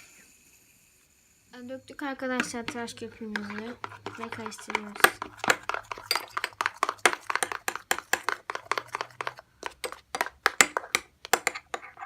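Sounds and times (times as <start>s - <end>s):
spoon clinking and scraping plate: 2.4s - 12.0s.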